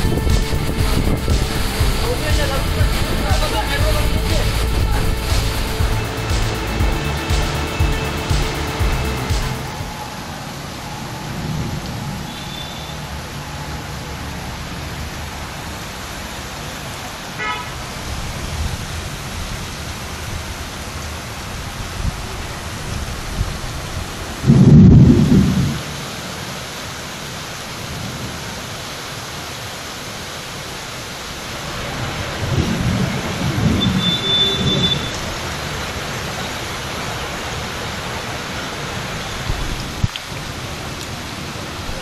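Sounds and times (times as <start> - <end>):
loud low rumble: 0.0 - 10.0
heavy rain pouring: 0.0 - 42.0.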